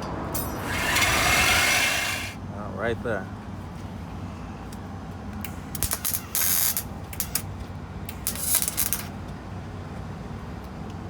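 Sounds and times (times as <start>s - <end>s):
ratchet wrench clicks: 5.4s - 7.5s, 8.1s - 9.2s
ratchet wrench ratcheting: 5.4s - 7.5s, 8.1s - 9.2s.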